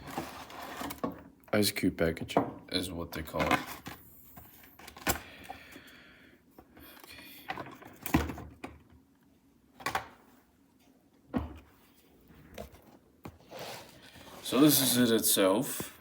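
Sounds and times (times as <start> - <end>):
plastic packaging rubbing: 13.4 - 14.8.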